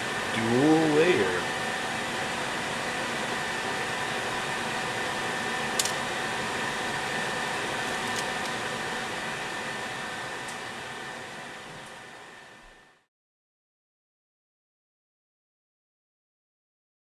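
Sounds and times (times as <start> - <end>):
microwave oven humming: 0.0 - 13.1
electric arcing snaps and ticks: 5.8 - 6.0.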